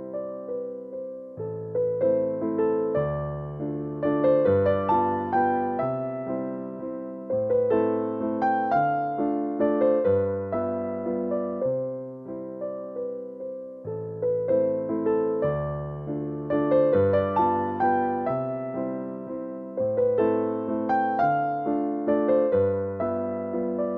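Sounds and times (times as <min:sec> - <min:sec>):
electric piano melody: 0:00.0 - 0:23.9.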